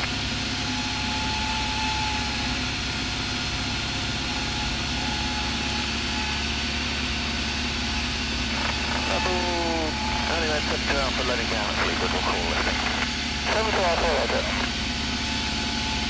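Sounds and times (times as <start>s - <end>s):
propeller plane engine drone: 0.0s - 16.0s.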